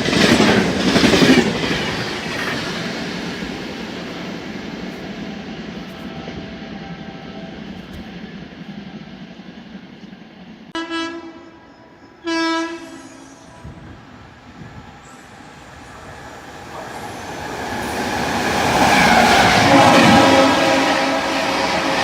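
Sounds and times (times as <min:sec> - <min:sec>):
train rumble: 0:00.0 - 0:22.0
train horn blasts: 0:10.7 - 0:13.9, 0:19.0 - 0:22.0.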